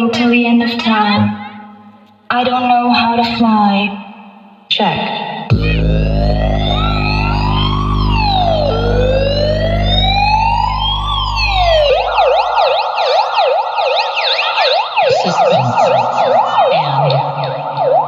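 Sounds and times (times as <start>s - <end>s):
low bass drone: 5.5s - 13.1s
electronic siren wail and yelp: 5.5s - 18.0s.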